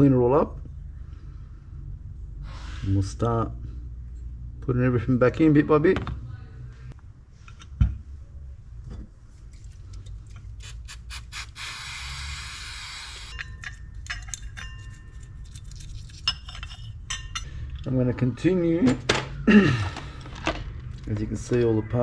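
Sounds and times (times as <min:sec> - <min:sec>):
steady hiss: 0:10.8 - 0:13.3
metal parts clicking and clinking: 0:12.9 - 0:18.0.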